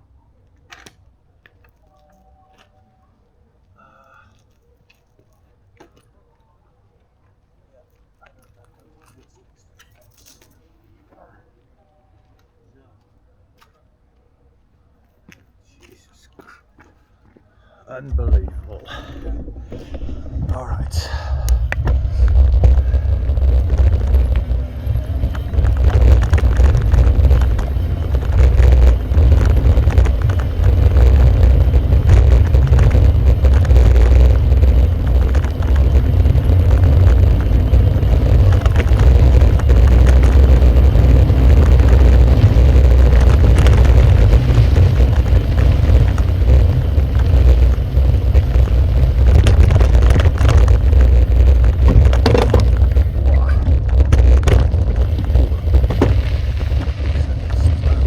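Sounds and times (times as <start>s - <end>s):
low rumble and dense rattle: 18.0s - 58.0s
wind on microphone: 18.1s - 58.0s.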